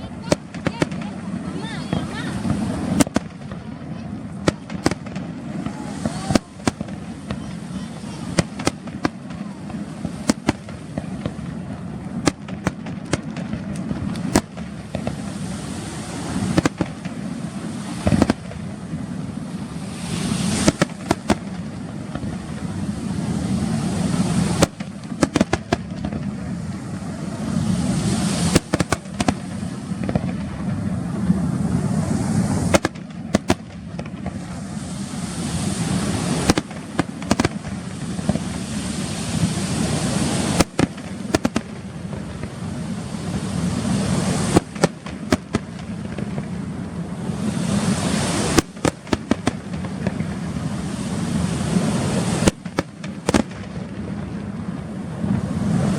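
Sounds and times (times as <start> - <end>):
firework crackling: 0.0 - 55.9
firework shells banging: 0.2 - 18.8, 20.0 - 22.4, 24.0 - 26.3, 28.4 - 30.6, 32.6 - 34.4, 35.8 - 42.6, 43.4 - 46.5, 47.8 - 50.4, 51.9 - 54.0.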